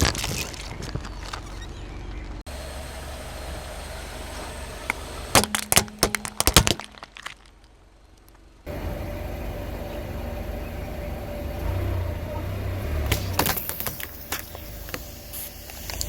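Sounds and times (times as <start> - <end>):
tyre crushing brittle objects: 0.0 - 2.4, 5.4 - 8.4, 13.1 - 15.0
low engine and rolling noise: 0.0 - 16.0
sharp cracks and snaps: 4.9 - 8.5.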